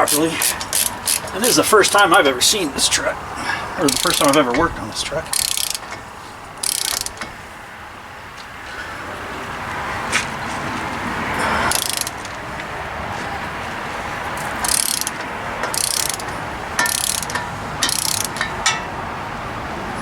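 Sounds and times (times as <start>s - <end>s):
hand ratchet clicking: 0.0s - 2.1s, 3.8s - 4.6s, 5.3s - 7.3s, 11.7s - 12.4s, 14.4s - 18.9s.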